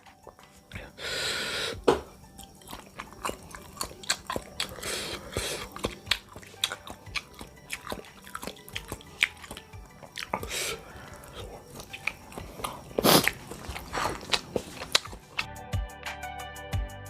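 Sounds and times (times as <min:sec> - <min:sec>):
person chewing with wet smacks: 0:02.4 - 0:15.5.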